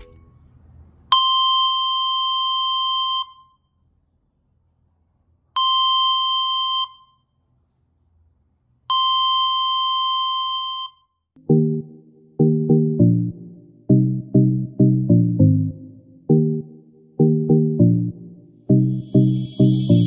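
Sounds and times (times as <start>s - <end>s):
high electronic alarm beep: 18.8s - 20.0s.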